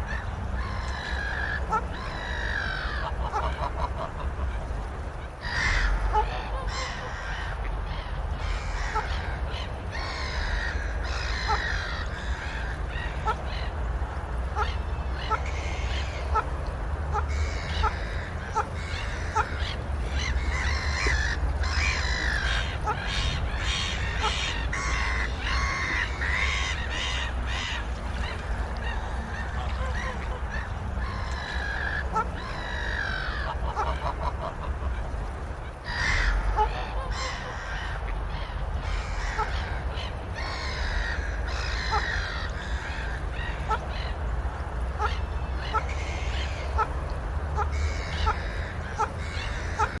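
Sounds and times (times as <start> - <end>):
waterfowl honking: 0.0 - 4.7, 14.4 - 16.5, 17.1 - 35.1, 35.7 - 44.3, 44.9 - 50.0.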